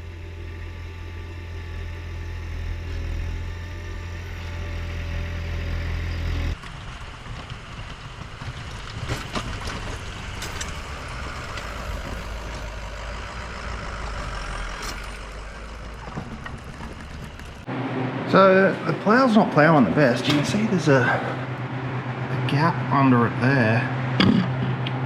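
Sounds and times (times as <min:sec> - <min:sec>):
truck engine running: 0:00.0 - 0:25.0
engine knocks: 0:02.4 - 0:17.8, 0:19.1 - 0:23.0.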